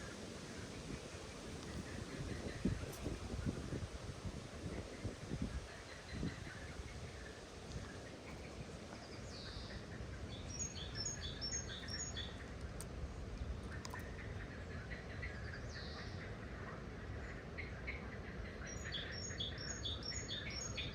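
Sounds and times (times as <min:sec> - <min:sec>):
low outdoor rumble: 0:00.0 - 0:20.9
birds chirping: 0:04.6 - 0:16.4, 0:17.1 - 0:20.9.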